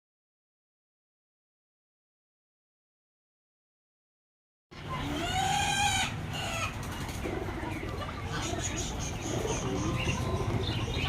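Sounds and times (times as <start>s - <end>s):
chicken drawn-out call: 4.8s - 11.0s
chickens clucking and chirping: 4.8s - 11.0s.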